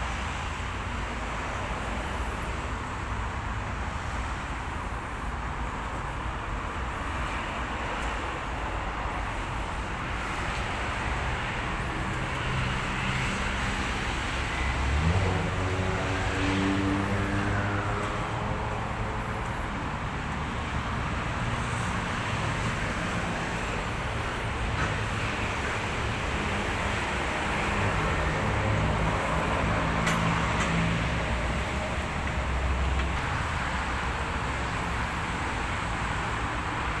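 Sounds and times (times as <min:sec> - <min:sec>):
diesel truck engine rumbling: 0:09.6 - 0:37.0.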